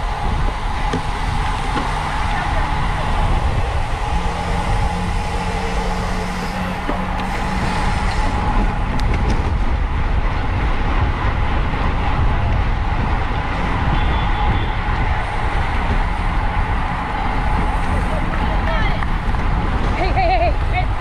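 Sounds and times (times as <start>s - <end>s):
bicycle tyre and road noise: 0.0s - 21.0s
wind rushing over microphone: 0.0s - 21.0s.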